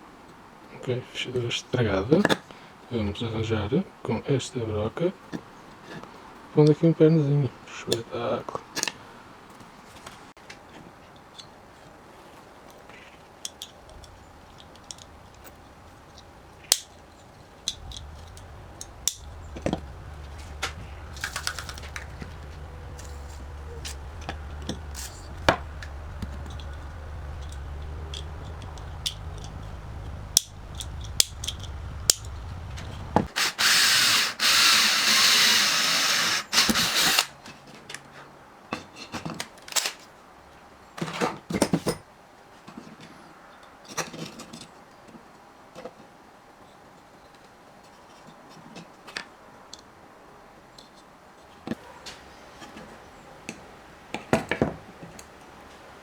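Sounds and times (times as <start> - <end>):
harsh high-pitched whirring: 13.8 - 37.3
power tool motor hum: 13.9 - 37.3.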